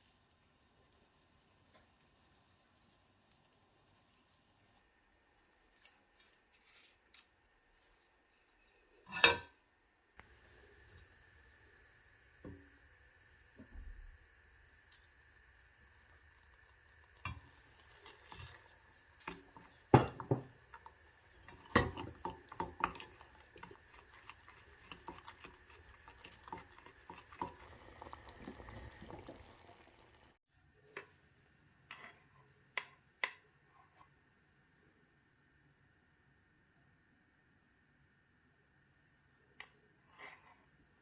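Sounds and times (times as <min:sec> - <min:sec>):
utensils and bowls clinking: 0:19.3 - 0:20.5.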